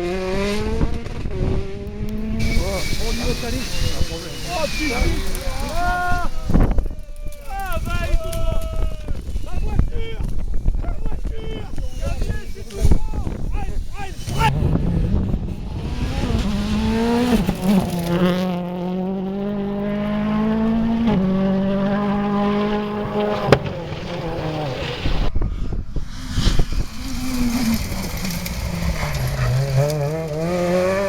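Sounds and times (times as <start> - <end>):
rally car engine revving: 0.0 - 31.0
sharp crack: 23.1 - 25.1.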